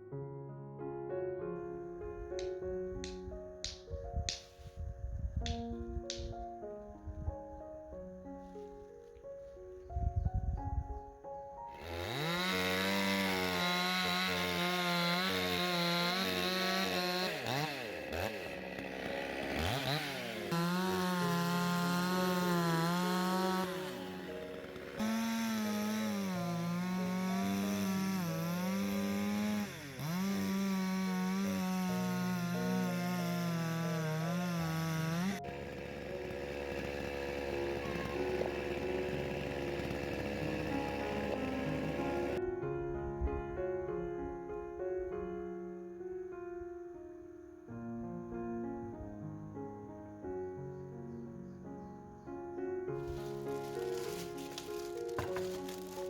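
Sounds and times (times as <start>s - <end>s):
chainsaw engine revving: 11.7s - 42.4s, 53.0s - 56.0s.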